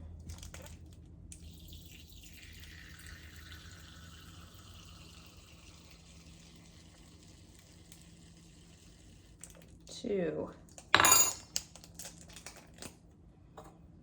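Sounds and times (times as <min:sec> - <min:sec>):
liquid trickling into spoon: 0:00.3 - 0:09.8.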